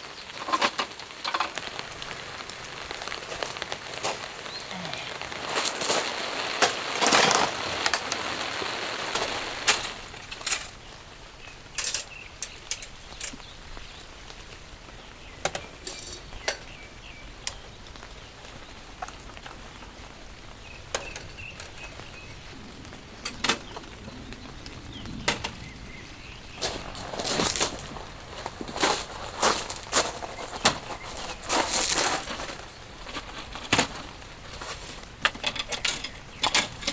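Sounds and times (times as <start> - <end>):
rain hissing: 0.0 - 36.9
sharp clicks and knocks: 35.2 - 36.9.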